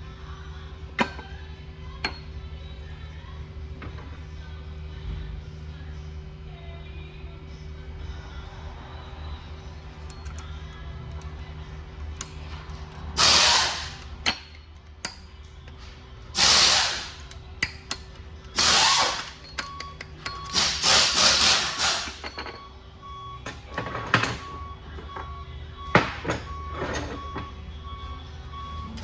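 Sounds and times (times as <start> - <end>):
steady shop hum: 0.0 - 29.0
power tool hissing bursts: 13.2 - 14.0, 16.4 - 17.2, 20.6 - 22.2.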